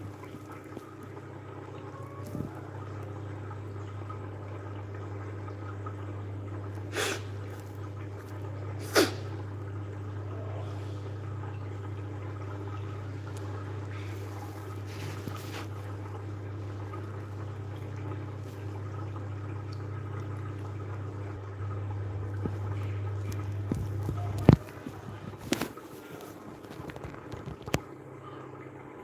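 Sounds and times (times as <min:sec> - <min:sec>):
aquarium pump hum: 0:00.0 - 0:29.0.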